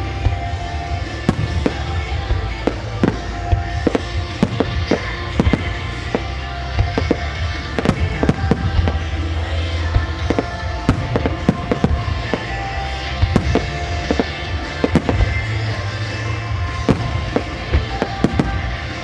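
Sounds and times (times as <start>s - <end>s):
fireworks bursting bangs: 0.0s - 19.0s
low rumble: 0.0s - 19.0s
music playing: 0.0s - 19.0s.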